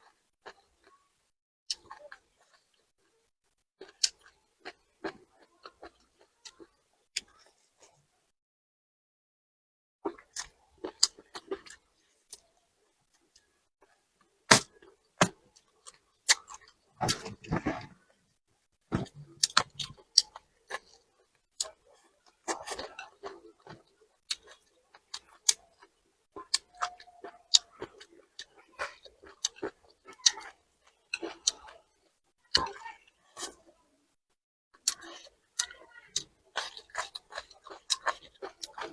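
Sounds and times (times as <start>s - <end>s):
chewing: 1.7s - 2.9s, 3.8s - 8.0s, 10.1s - 12.5s, 18.9s - 33.6s, 34.8s - 38.9s.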